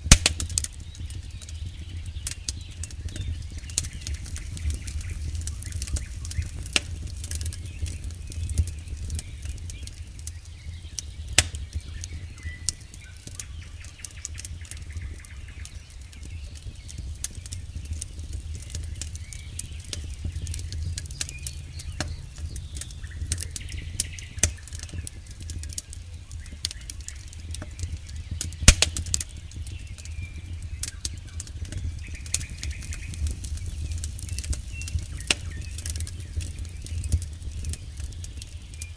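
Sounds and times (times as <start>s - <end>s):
campfire crackling and popping: 0.0s - 38.9s
low rumble: 17.0s - 38.2s.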